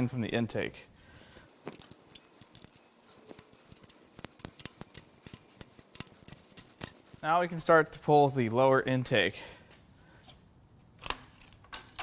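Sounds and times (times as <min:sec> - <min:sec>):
hand tools clicking: 0:01.6 - 0:07.3.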